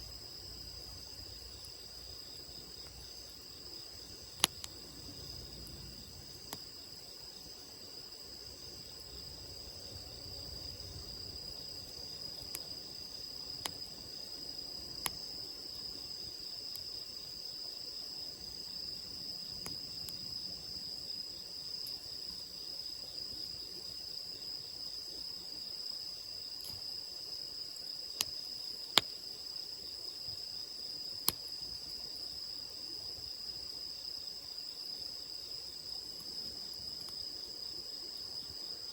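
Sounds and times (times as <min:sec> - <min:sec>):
crickets chirping: 0:00.0 - 0:38.9
campfire crackling and popping: 0:04.2 - 0:06.8, 0:11.2 - 0:14.1, 0:14.9 - 0:15.4, 0:19.4 - 0:20.3.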